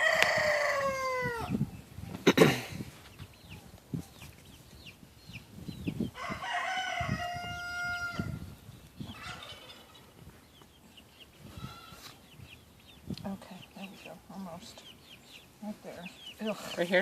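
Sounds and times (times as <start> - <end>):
rooster crowing: 0.0 - 1.6, 6.2 - 8.4.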